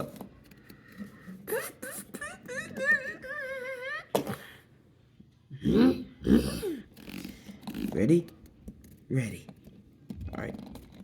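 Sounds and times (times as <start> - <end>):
throaty grunting: 5.6 - 6.9.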